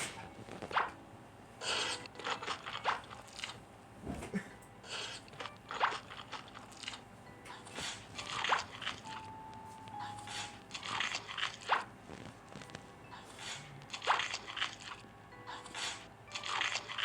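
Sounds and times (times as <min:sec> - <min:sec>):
wet crunchy chewing: 0:04.9 - 0:07.0, 0:07.6 - 0:09.2, 0:10.3 - 0:17.0.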